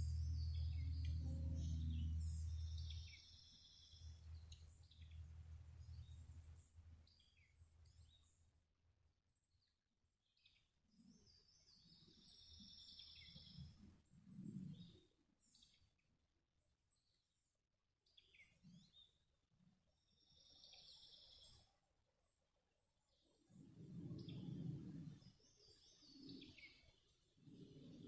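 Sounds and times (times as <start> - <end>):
soft low thumps: 0.0 - 3.1
songbird trilled chirps: 0.0 - 6.2
low engine hum: 0.0 - 7.0.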